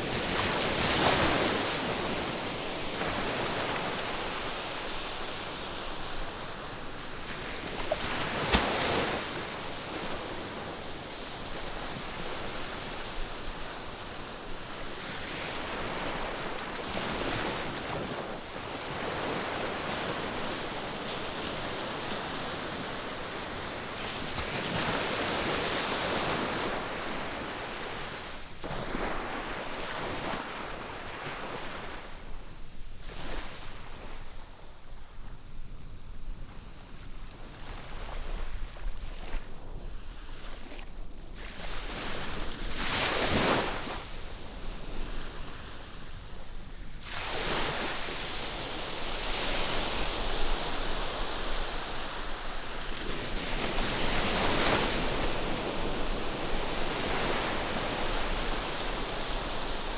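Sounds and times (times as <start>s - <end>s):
ocean waves on beach: 37.5s - 59.9s.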